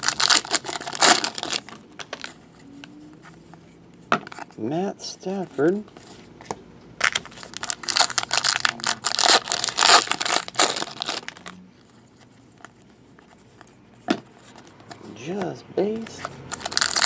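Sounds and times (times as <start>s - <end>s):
foil wrapper crinkling and tearing: 0.0s - 2.3s, 7.0s - 11.6s, 16.5s - 17.0s.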